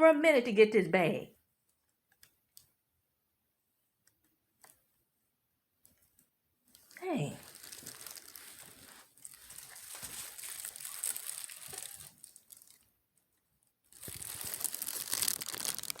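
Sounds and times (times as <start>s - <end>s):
paper bag rustling: 7.4s - 12.8s, 14.0s - 16.0s.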